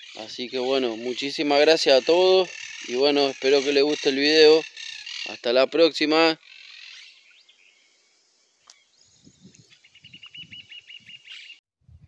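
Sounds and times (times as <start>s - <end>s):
small bird chirping rapidly: 0.0s - 5.4s, 8.6s - 11.6s.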